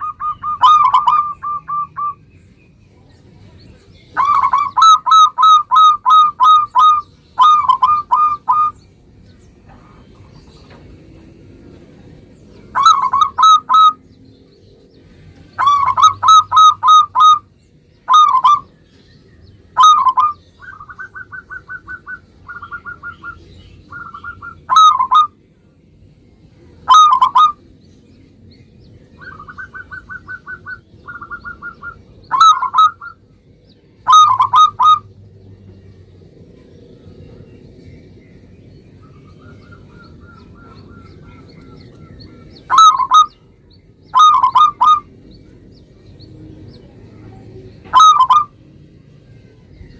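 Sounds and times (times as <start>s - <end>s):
dove cooing: 0.0s - 2.2s, 4.2s - 8.8s, 12.7s - 14.0s, 15.5s - 17.5s, 18.1s - 18.7s, 19.7s - 25.4s, 26.8s - 27.6s, 29.2s - 33.2s, 34.0s - 35.1s, 39.1s - 43.4s, 44.1s - 45.2s, 47.8s - 48.6s
bird trills: 0.0s - 2.6s, 4.0s - 10.8s, 12.6s - 14.2s, 15.4s - 25.4s, 26.8s - 27.7s, 28.8s - 35.1s, 39.0s - 46.8s, 47.9s - 48.6s.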